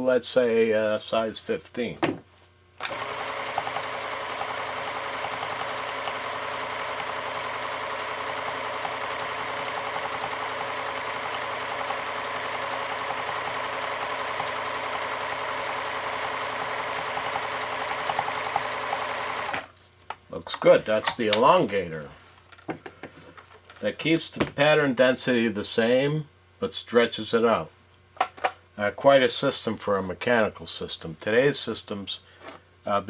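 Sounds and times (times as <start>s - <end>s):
sewing machine running: 2.8s - 19.7s.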